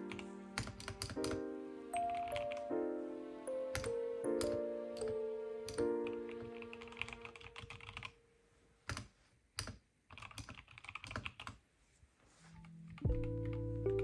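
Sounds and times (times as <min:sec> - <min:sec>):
music: 0:00.0 - 0:07.9, 0:12.6 - 0:14.0
mechanical keyboard typing: 0:00.6 - 0:01.4, 0:02.0 - 0:02.7, 0:03.7 - 0:08.2, 0:08.9 - 0:11.6.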